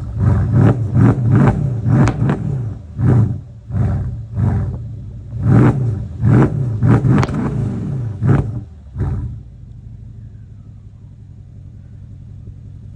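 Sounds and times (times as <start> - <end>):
car engine revving: 0.0 - 10.2
engine idle rumble: 0.0 - 12.9.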